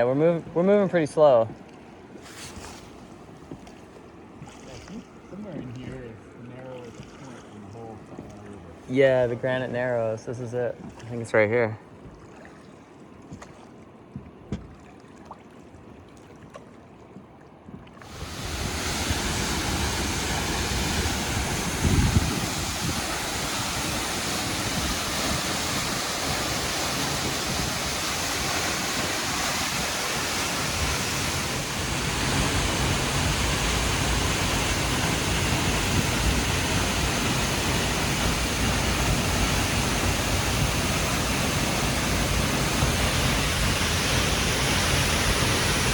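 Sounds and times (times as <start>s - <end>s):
rushing white water roar: 18.0s - 45.9s.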